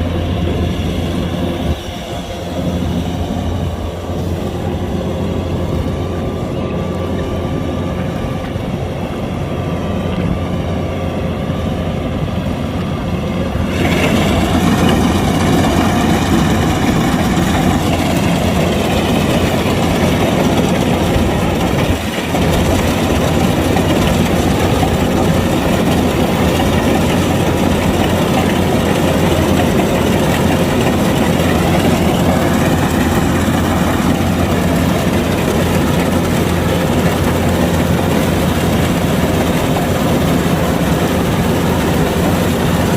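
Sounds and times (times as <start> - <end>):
diesel engine running: 0.0 - 42.9
machinery clatter: 12.7 - 42.9.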